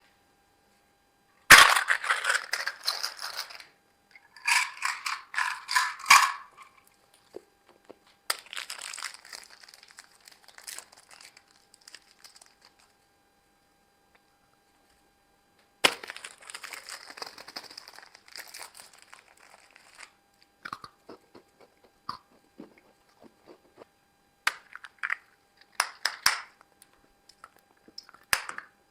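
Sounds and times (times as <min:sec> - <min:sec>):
plastic wrappers crinkling and tearing: 0:01.5 - 0:03.6, 0:08.3 - 0:13.0, 0:15.8 - 0:20.2
crackles and clicks: 0:06.0 - 0:13.0, 0:15.6 - 0:28.8.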